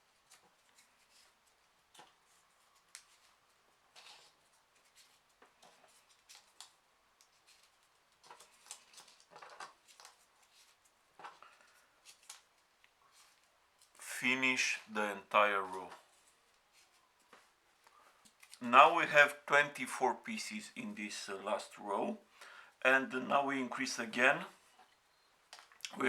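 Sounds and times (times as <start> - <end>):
paper rustling: 0.0 - 14.0, 15.5 - 19.1
small paper clicks: 0.1 - 14.0.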